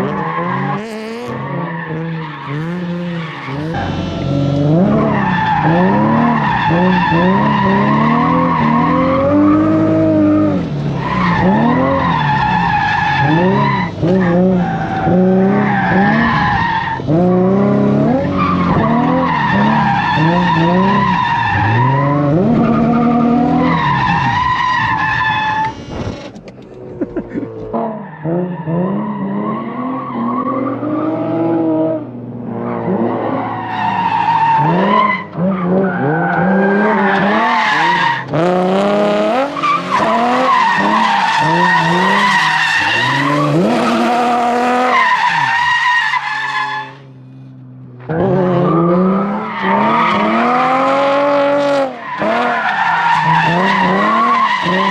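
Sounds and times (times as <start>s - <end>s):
car engine revving hard: 0.0s - 24.4s, 27.2s - 45.6s, 48.0s - 54.9s
tire screech: 0.0s - 54.9s.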